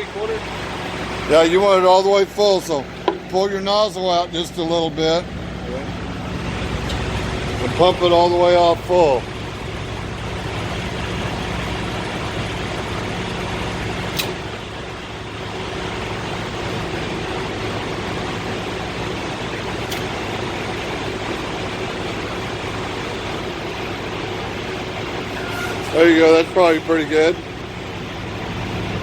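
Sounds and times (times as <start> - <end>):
diesel engine idling: 0.0 - 29.0
sharp clicks: 14.1 - 14.4, 19.9 - 20.2.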